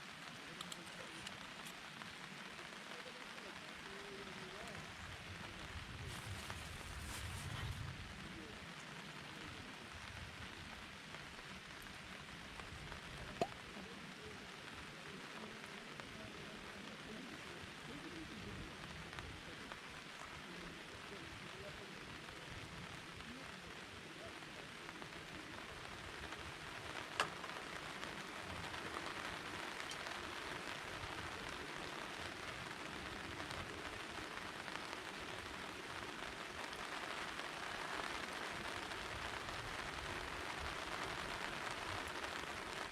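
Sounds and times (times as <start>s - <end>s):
rain pattering on surfaces: 0.0s - 42.9s.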